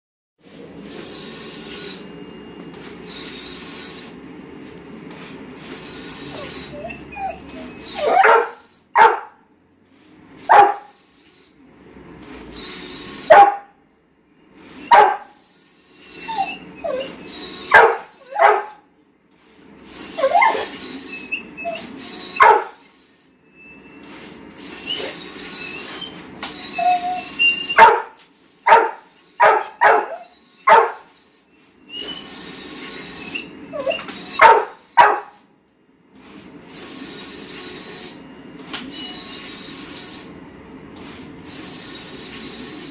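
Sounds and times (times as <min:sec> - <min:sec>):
plotter whirring hiss: 0:00.4 - 0:06.8, 0:09.9 - 0:13.4, 0:36.2 - 0:42.9
dog yipping: 0:06.4 - 0:09.4, 0:10.5 - 0:10.9, 0:13.3 - 0:13.7, 0:14.8 - 0:15.3, 0:16.2 - 0:18.8, 0:20.2 - 0:20.7, 0:21.3 - 0:22.8, 0:26.7 - 0:31.1, 0:33.2 - 0:35.4
dog barking: 0:08.0 - 0:09.4, 0:10.5 - 0:10.9, 0:13.3 - 0:13.7, 0:14.9 - 0:15.3, 0:17.7 - 0:18.8, 0:22.4 - 0:22.8, 0:27.8 - 0:31.1, 0:34.4 - 0:35.4.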